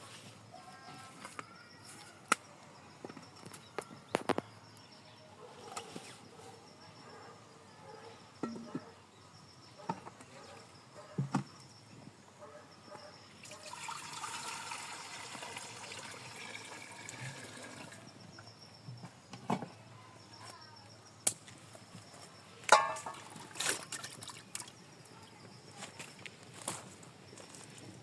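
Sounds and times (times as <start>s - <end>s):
liquid pouring: 13.4s - 18.1s.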